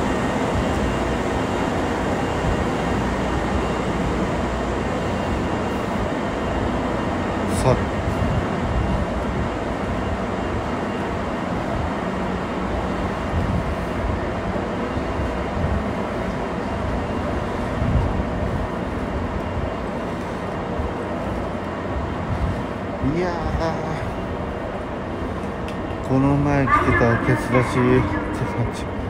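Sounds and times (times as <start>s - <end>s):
electric trains humming: 0.0s - 29.0s.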